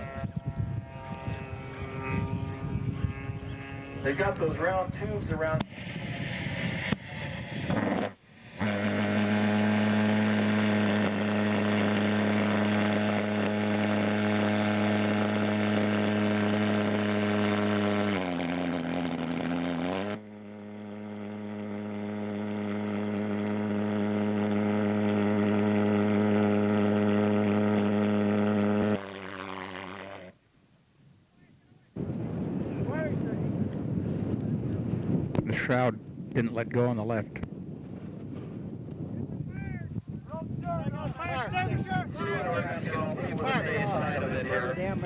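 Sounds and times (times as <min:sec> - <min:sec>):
pulse jet engine buzzing drone: 0:00.0 - 0:30.4, 0:41.0 - 0:45.0.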